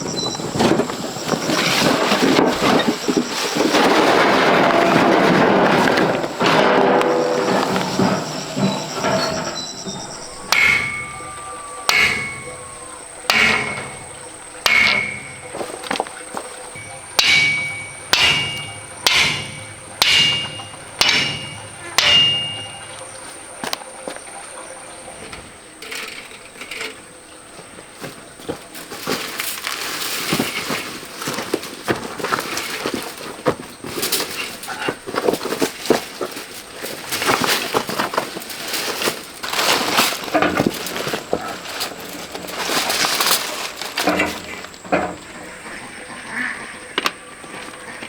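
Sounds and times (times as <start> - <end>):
rocks and gravel clattering: 0.0 - 48.0
steel tool striking rock: 5.9 - 23.3.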